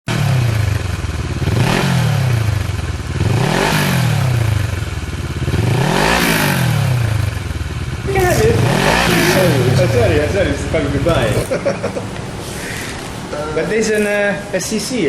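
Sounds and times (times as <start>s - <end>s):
motorcycle engine revving: 0.1s - 12.1s.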